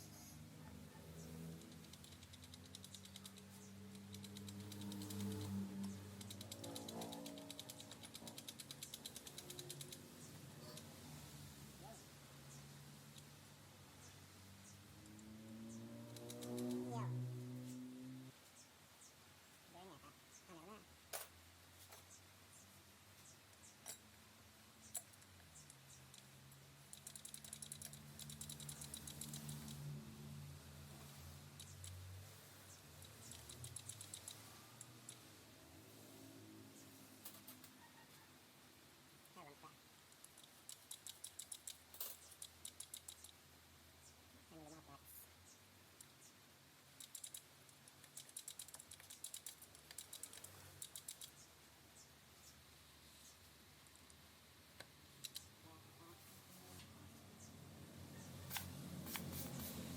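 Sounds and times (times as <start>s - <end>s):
light clicks of metal parts: 1.2s - 11.3s, 23.2s - 30.0s, 40.1s - 44.2s, 45.9s - 51.5s
rapid ticking: 1.5s - 11.0s, 16.1s - 16.8s, 25.0s - 30.0s, 32.7s - 35.3s, 40.1s - 43.5s, 46.8s - 51.5s.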